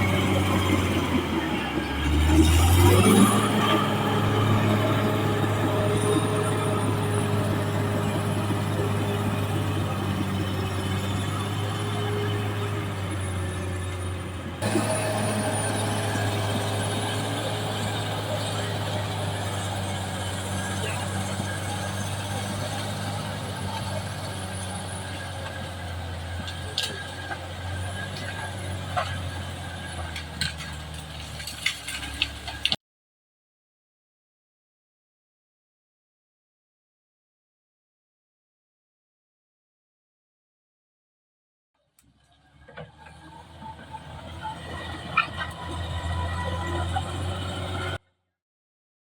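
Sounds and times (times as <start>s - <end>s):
bulldozer diesel engine running: 0.0s - 32.8s, 42.4s - 48.0s.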